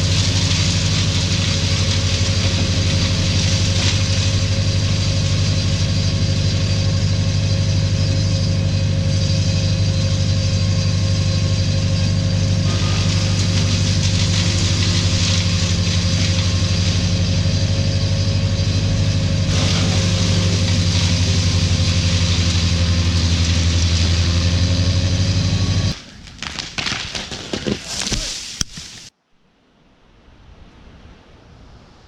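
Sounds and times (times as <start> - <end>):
large engine running: 0.0 - 26.0.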